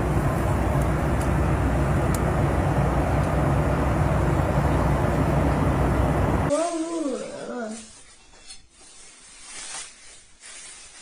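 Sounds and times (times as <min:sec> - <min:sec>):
vehicle engine and road rumble: 0:00.0 - 0:06.5.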